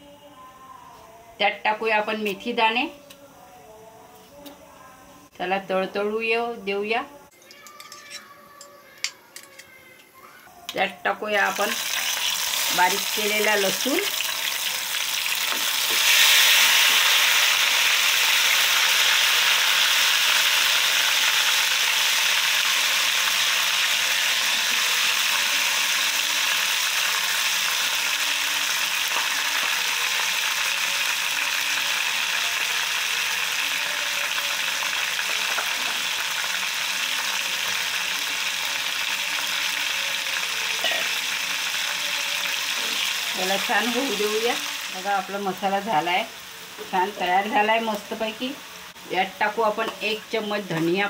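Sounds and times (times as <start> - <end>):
garlic sizzling in hot oil: 11.3 - 51.0.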